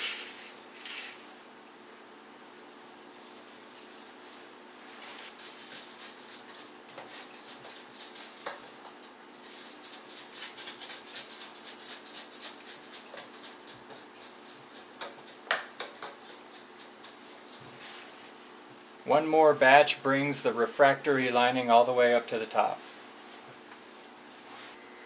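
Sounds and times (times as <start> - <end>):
scraping and tapping strokes: 4.9 - 19.1.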